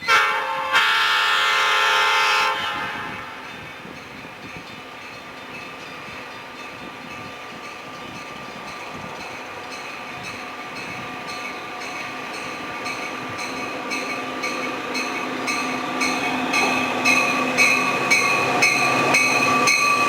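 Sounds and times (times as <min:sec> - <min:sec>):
train approaching: 0:00.0 - 0:20.0.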